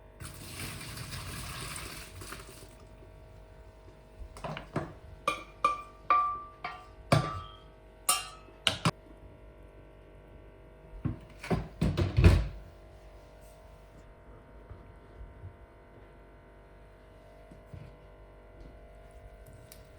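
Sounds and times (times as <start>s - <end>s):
metal kitchenware clattering: 4.4s - 8.9s.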